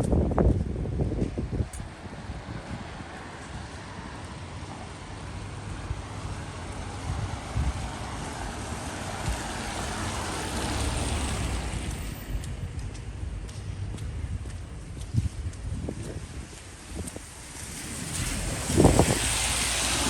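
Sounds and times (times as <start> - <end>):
wind on microphone: 0.0 - 3.7, 6.9 - 12.8, 13.8 - 20.0
tyre hiss on wet street: 2.1 - 12.6, 16.4 - 20.0.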